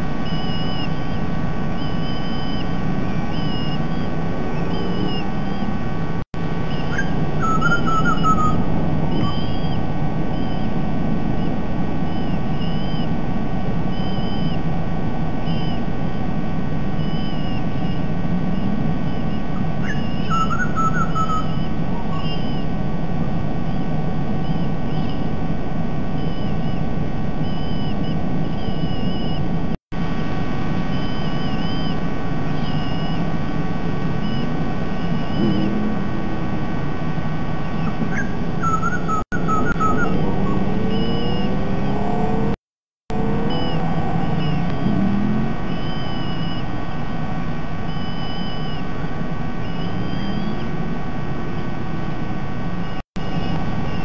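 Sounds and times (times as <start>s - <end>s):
steady rushing noise: 0.0s - 20.8s, 21.4s - 54.0s
bird chirping calls: 0.2s - 5.8s, 6.6s - 10.8s, 17.0s - 22.7s, 26.2s - 29.5s, 30.9s - 33.3s, 37.6s - 42.5s, 43.2s - 46.7s, 49.6s - 50.7s
low warbled bird phrase: 0.2s - 5.9s, 6.6s - 10.8s, 17.0s - 22.7s, 34.2s - 42.6s, 43.2s - 46.7s.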